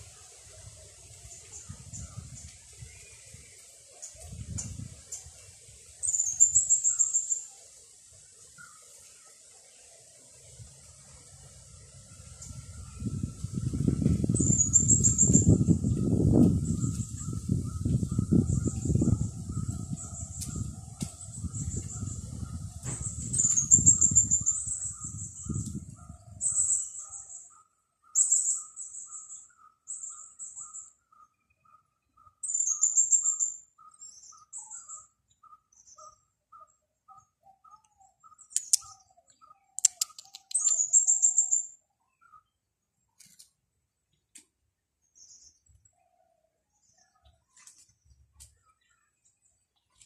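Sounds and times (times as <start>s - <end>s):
wind rumbling on microphone: 0.0s - 7.1s, 10.4s - 27.2s
songbirds chirping: 0.0s - 50.0s.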